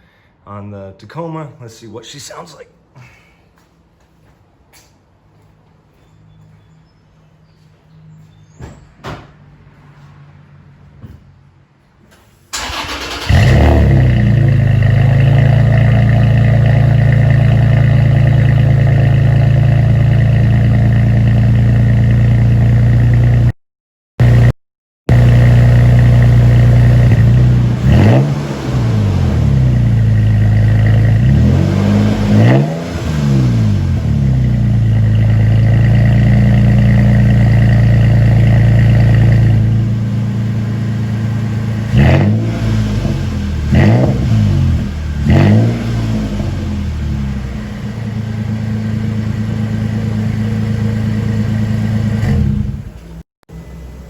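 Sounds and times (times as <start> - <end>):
truck engine idling and revving: 12.6 - 23.6, 24.2 - 24.5, 25.1 - 54.0.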